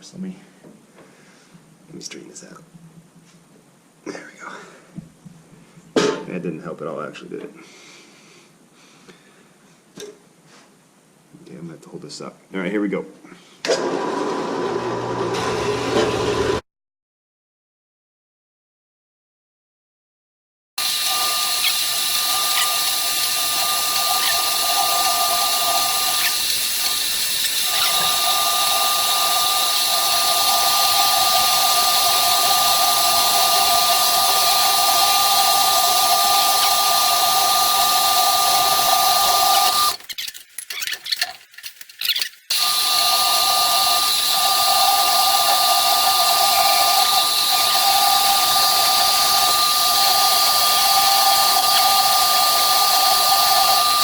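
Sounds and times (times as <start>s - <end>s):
bandsaw cutting through steel: 20.8s - 40.3s, 42.5s - 54.0s.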